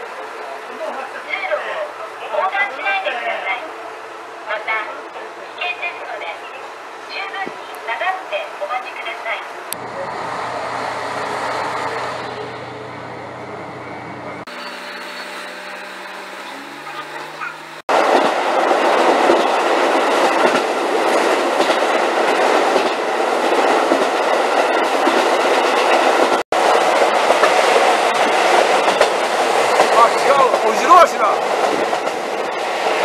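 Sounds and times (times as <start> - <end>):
train wheels clattering on rails: 17.9 - 33.0.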